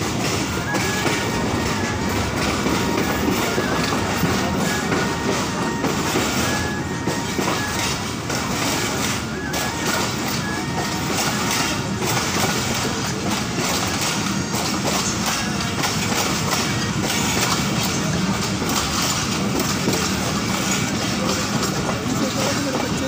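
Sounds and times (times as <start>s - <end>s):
clattering over rail joints: 0.0s - 23.0s
train wheels rumbling on rails: 0.0s - 23.0s.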